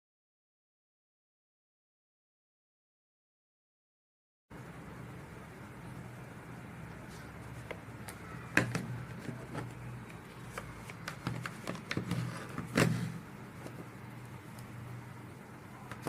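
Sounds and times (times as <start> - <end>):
objects being handled: 7.0 - 14.8, 15.8 - 16.0.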